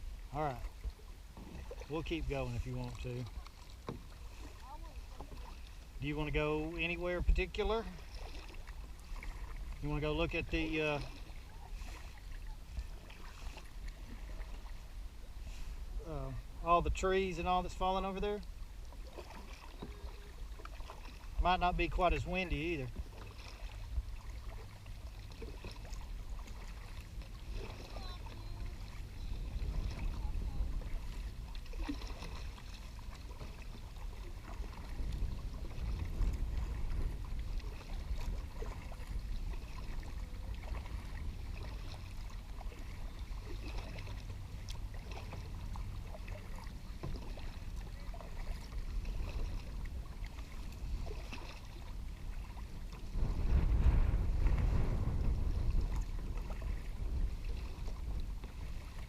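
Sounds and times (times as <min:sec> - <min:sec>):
kayak paddling water: 0:00.0 - 0:59.0
wind buffeting microphone: 0:25.8 - 0:44.7, 0:47.2 - 0:59.0.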